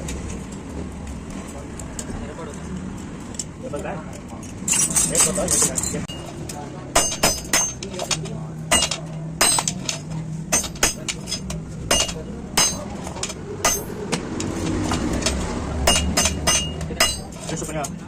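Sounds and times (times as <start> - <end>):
hammer tapping on metal: 6.9 - 18.0.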